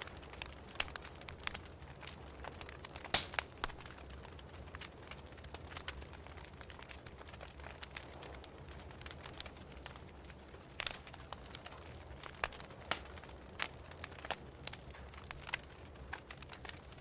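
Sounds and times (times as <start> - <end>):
low fire rumble: 0.0 - 17.0
wood fire crackling: 0.0 - 17.0.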